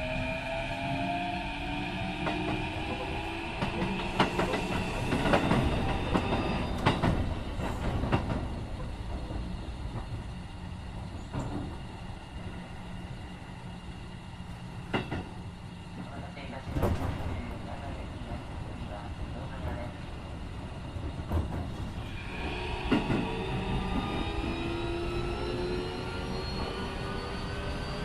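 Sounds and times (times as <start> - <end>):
train running rumble: 2.1 - 26.4
train inverter tones: 22.0 - 28.0.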